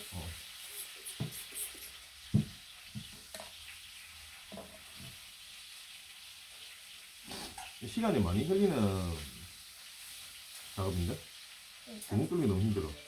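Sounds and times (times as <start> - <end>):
steady hiss: 4.6 - 13.0.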